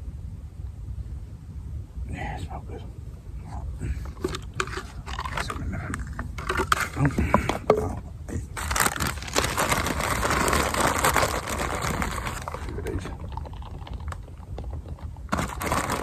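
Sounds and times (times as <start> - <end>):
bait crackling in mesh bag: 8.6 - 16.0.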